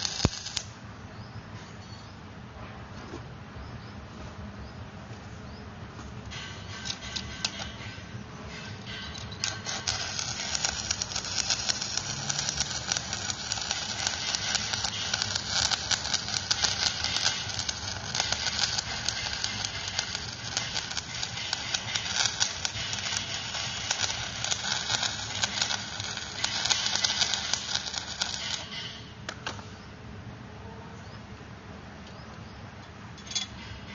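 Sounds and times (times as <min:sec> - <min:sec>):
welding arc crackling and sizzling: 0:00.0 - 0:00.8, 0:06.3 - 0:29.1.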